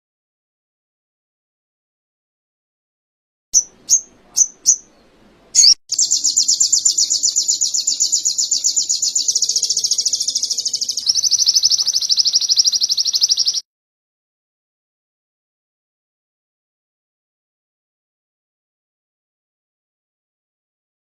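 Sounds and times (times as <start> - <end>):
songbird chirping and trilling: 3.6 - 13.6.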